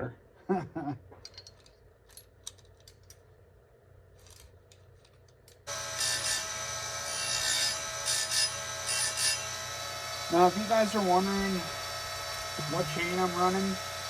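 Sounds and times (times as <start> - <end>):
chain grinder running: 5.7 - 14.0.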